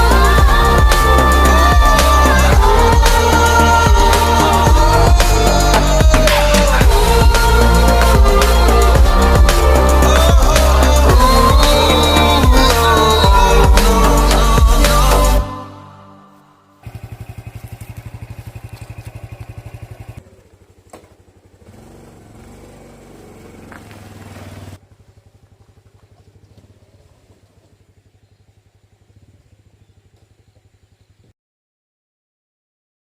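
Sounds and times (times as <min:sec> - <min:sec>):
motorcycle engine running: 0:00.0 - 0:15.4, 0:16.8 - 0:31.3.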